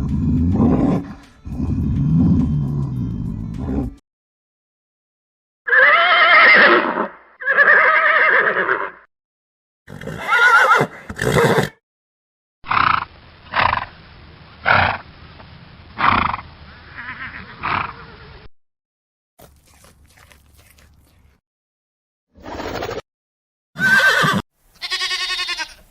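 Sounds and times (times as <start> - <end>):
horse neighing: 5.7 - 9.1, 9.9 - 11.8, 23.8 - 25.8.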